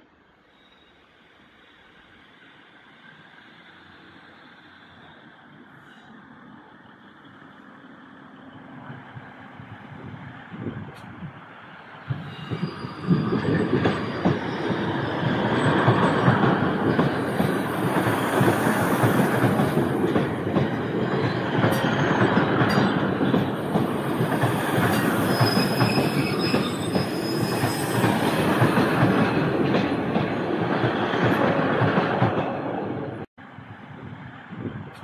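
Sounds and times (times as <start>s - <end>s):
high wheel squeal: 0.4s - 1.8s, 12.1s - 20.0s, 20.8s - 29.5s
train wheels clattering over rails: 12.0s - 33.3s.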